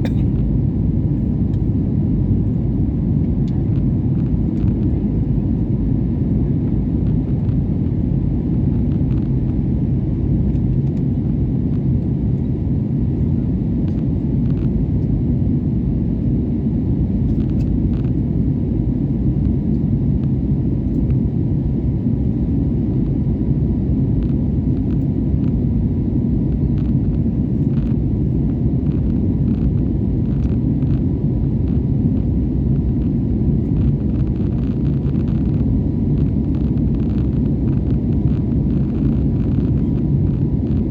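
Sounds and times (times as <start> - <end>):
jet engine cabin rumble: 0.0 - 40.9.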